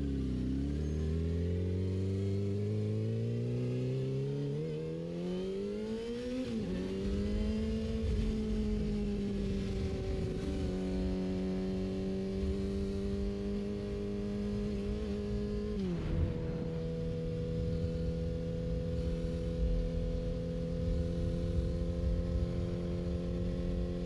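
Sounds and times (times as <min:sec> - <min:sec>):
motorcycle engine running: 0:00.0 - 0:24.0
low wind rumble: 0:05.3 - 0:24.0.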